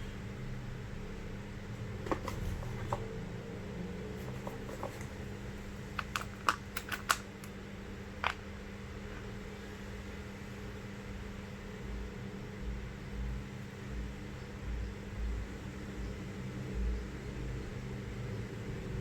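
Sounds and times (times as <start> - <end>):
steady low hum: 0.0 - 19.0
small tools clicking and tapping: 5.9 - 7.6.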